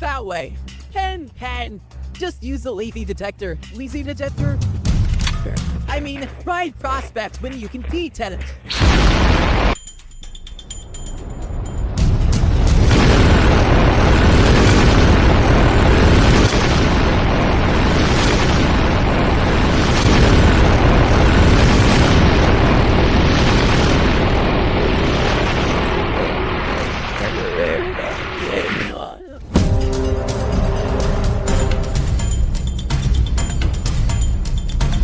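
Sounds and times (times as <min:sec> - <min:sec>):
cartoon explosion rumbling roar: 0:08.7 - 0:09.8, 0:12.3 - 0:29.8.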